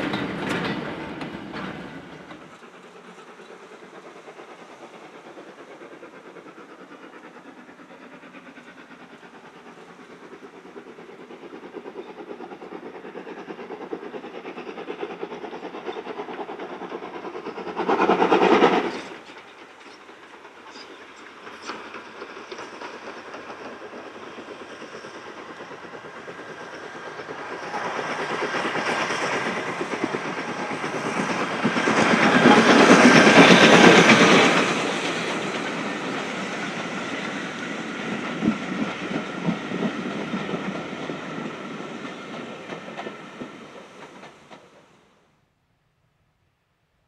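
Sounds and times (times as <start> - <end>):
wheels clicking over rail joints: 0.0 - 4.0
train running past: 0.0 - 45.4.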